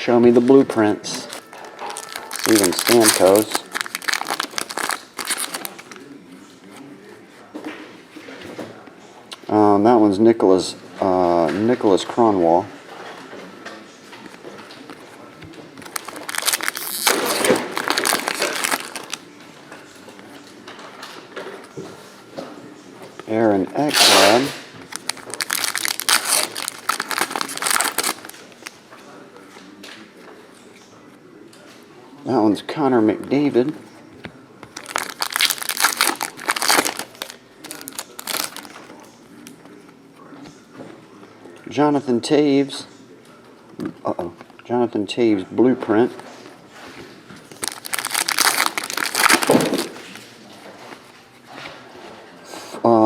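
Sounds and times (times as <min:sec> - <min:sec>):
wrapper crinkling and tearing: 0:01.1 - 0:06.1, 0:15.8 - 0:19.2, 0:23.9 - 0:28.7, 0:34.8 - 0:38.8, 0:47.5 - 0:50.2.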